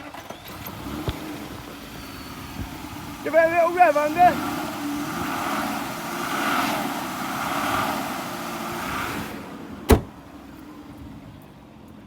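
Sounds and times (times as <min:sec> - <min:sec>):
car engine revving and idling: 0:00.0 - 0:11.9
sharp knock: 0:09.9 - 0:10.1.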